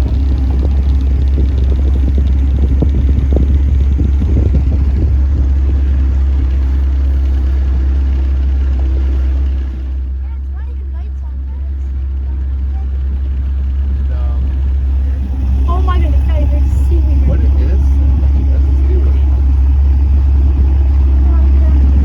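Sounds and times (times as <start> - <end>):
motorboat engine droning: 0.0 - 22.0
wind buffeting microphone: 0.0 - 22.0.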